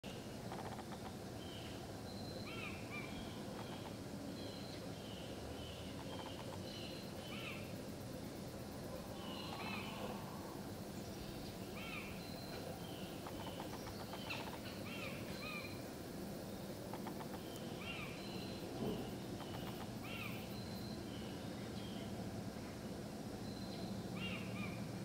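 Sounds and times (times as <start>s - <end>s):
bird chirping: 0.0s - 7.8s, 8.9s - 15.8s, 16.6s - 25.0s
steady low hum: 0.0s - 25.0s.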